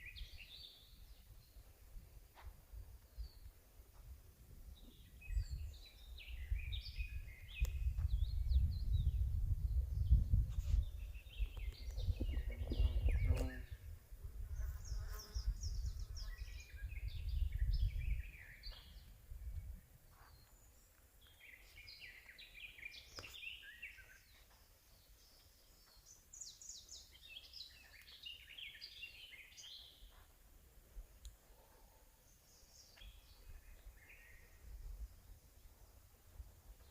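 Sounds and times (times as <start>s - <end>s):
songbirds singing: 0.0s - 3.7s, 4.7s - 30.3s, 31.0s - 36.9s
low rumble on microphone: 1.4s - 19.9s.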